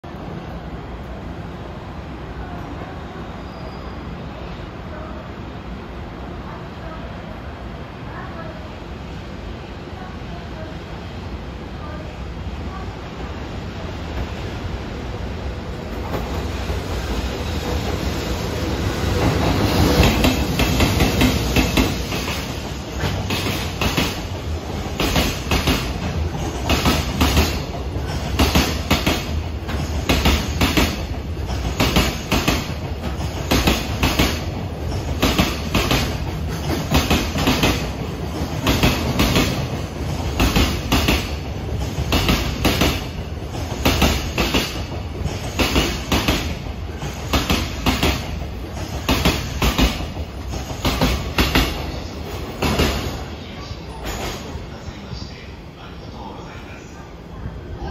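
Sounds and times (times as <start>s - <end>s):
low train rumble: 0.0s - 57.9s
electric locomotive passing: 0.1s - 57.9s.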